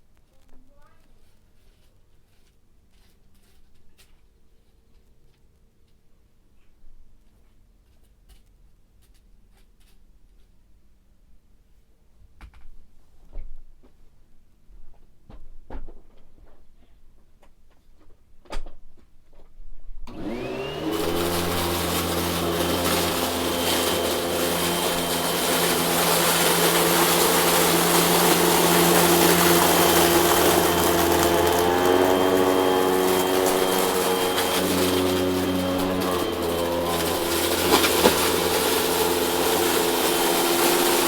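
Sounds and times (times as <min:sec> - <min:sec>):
vacuum cleaner motor running: 0:20.1 - 0:41.0.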